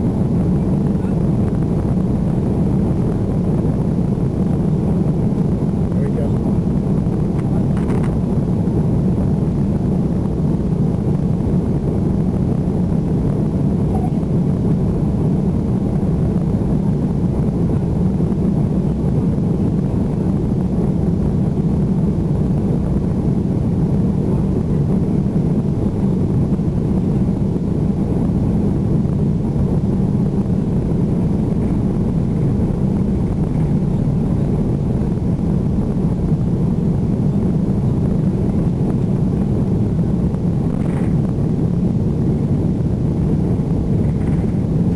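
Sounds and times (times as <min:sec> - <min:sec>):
airplane engines rumbling in cabin: 0:00.0 - 0:44.9.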